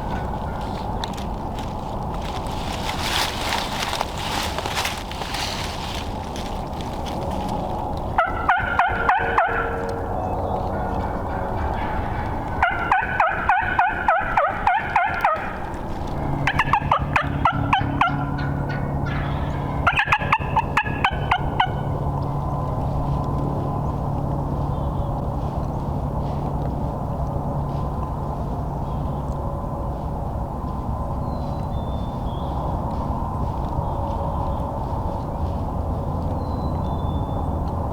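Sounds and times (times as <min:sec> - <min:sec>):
steady low hum: 0:00.0 - 0:37.9
turkey yelping: 0:08.2 - 0:22.0.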